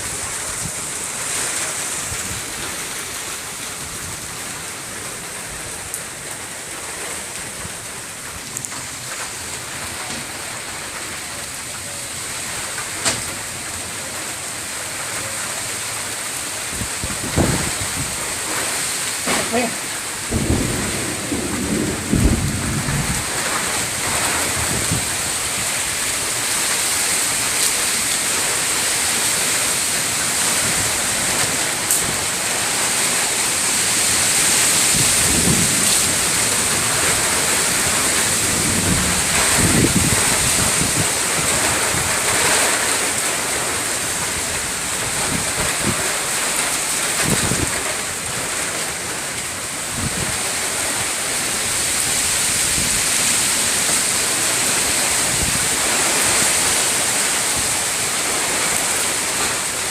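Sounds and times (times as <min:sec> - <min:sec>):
wind and rain hissing: 0:00.0 - 0:59.9
low thunder rumbles: 0:16.7 - 0:26.4, 0:30.3 - 0:56.8.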